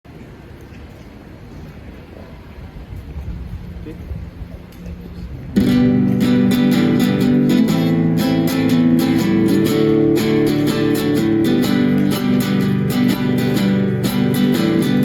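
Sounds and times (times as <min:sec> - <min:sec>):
low street noise: 0:00.1 - 0:15.0
acoustic guitar strumming: 0:05.5 - 0:15.0.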